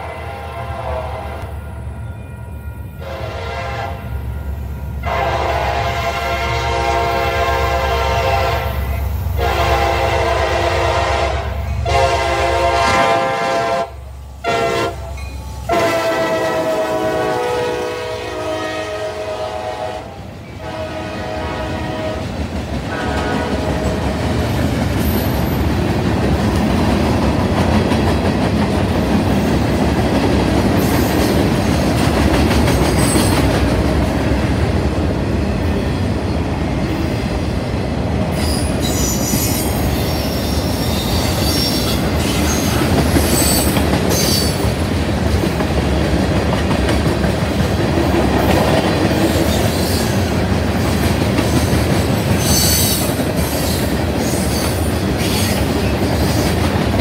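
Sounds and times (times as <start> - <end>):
train air horn blasts: 0.0 - 1.8, 2.7 - 24.1
freight cars wheel clickety-clack: 22.3 - 34.5, 42.0 - 57.0.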